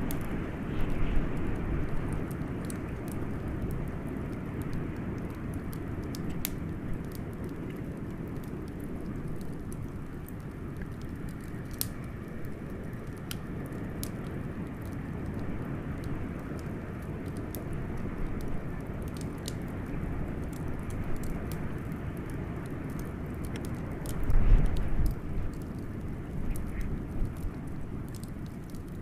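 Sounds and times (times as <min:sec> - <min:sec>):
blizzard wind blowing: 0:00.0 - 0:05.5
wood fire crackling and popping: 0:00.0 - 0:29.0.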